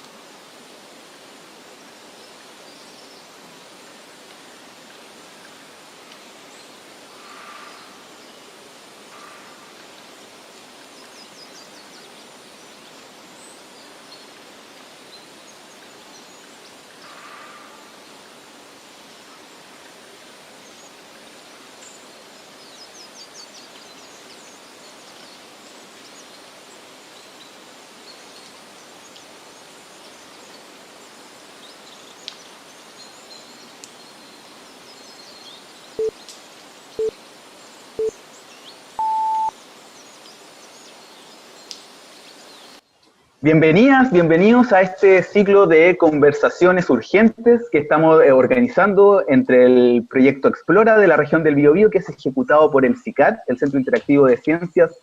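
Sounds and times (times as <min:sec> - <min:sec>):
steady hiss: 0:00.0 - 0:55.0
bird calls and chirps: 0:31.6 - 0:36.3, 0:37.0 - 0:43.1.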